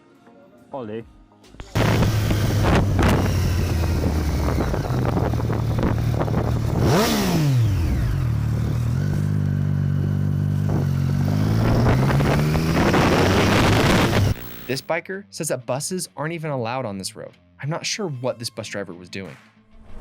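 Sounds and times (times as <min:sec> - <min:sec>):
whine: 0:01.6 - 0:06.8, 0:07.9 - 0:14.9
motorcycle engine running: 0:01.6 - 0:14.9.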